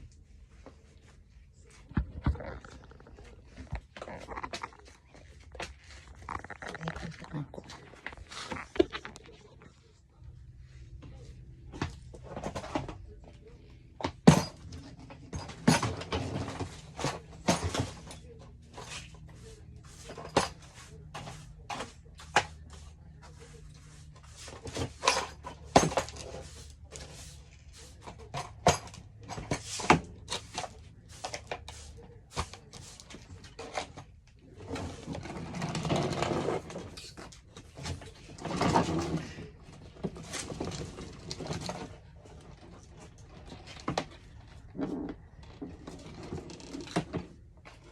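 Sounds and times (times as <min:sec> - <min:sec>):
household objects clattering: 0:14.0 - 0:22.8, 0:24.2 - 0:47.9.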